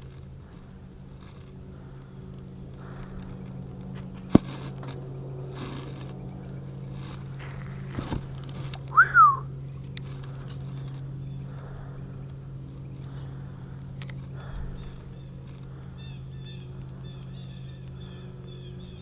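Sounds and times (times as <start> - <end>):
boat motor humming: 0.0 - 19.0
short whistled note: 9.0 - 9.4.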